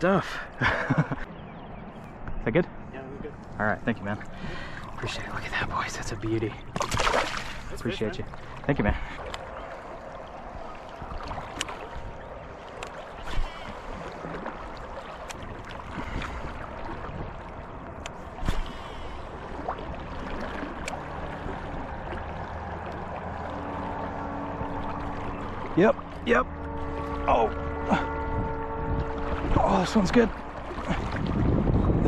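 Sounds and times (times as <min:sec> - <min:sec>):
river water rushing: 0:04.0 - 0:32.0
sharp knocks or splashes: 0:06.6 - 0:09.5.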